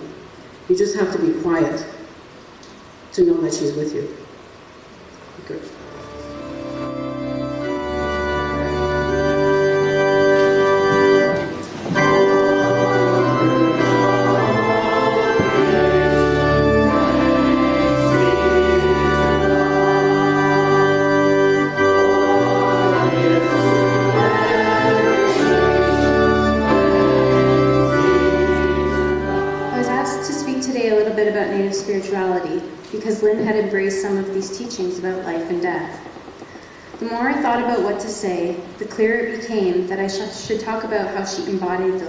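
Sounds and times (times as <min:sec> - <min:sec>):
organ playing sustained chords: 0:05.6 - 0:35.8.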